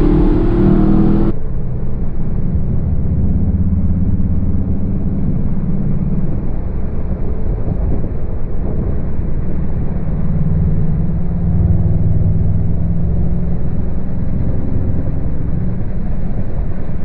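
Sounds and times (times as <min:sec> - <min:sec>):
car engine accelerating: 0:00.0 - 0:01.4, 0:09.9 - 0:17.0
road and wind noise: 0:00.0 - 0:17.0.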